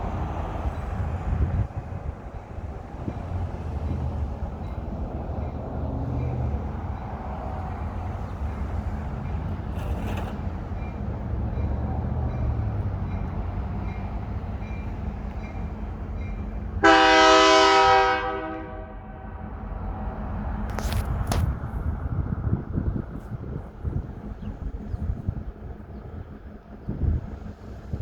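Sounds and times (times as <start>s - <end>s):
train rumbling: 0.0s - 28.0s
locomotive horn blast: 16.8s - 19.6s.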